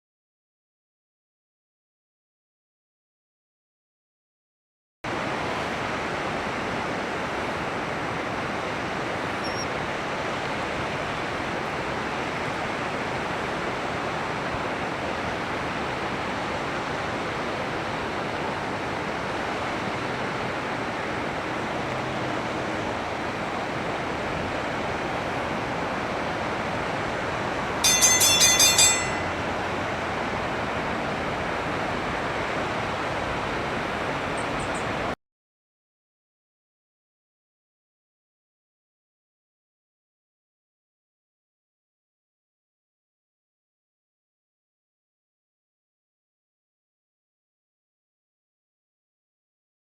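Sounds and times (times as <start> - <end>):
flowing water: 5.1 - 35.2
kingfisher shrill calls: 9.4 - 9.7.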